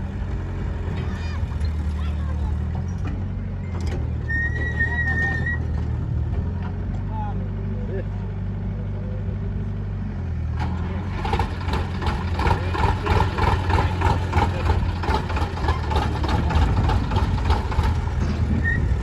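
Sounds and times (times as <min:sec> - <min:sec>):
heavy diesel engine running: 0:00.0 - 0:19.0
clatter of rattles and knocks: 0:10.6 - 0:19.0.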